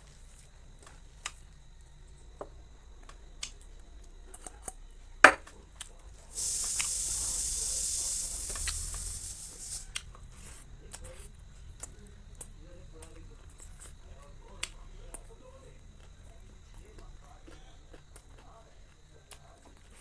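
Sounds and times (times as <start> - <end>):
steady hiss: 5.9 - 19.2.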